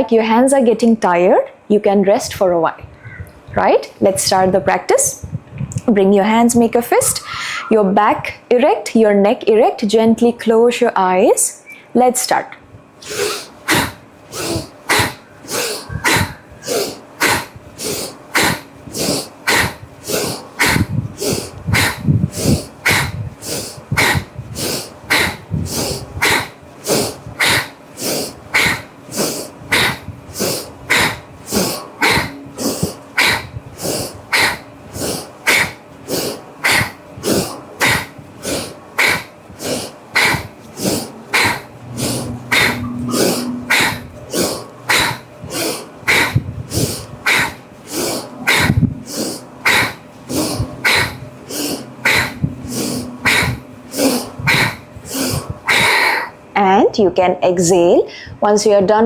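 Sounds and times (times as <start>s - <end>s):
forceful nasal breathing: 6.8s - 8.0s, 13.0s - 56.5s.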